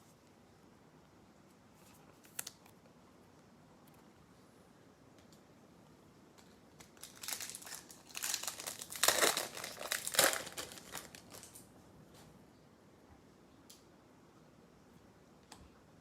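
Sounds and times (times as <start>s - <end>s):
foil wrapper crinkling: 6.7s - 11.7s.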